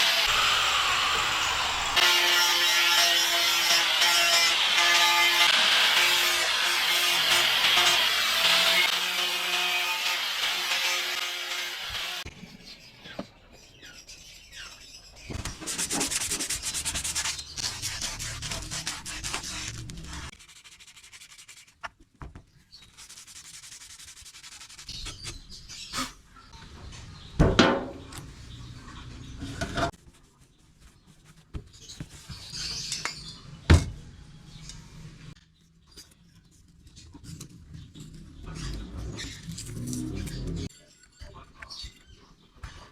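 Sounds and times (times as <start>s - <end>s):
rubbing and rasping on metal: 15.5s - 21.9s, 22.8s - 26.1s.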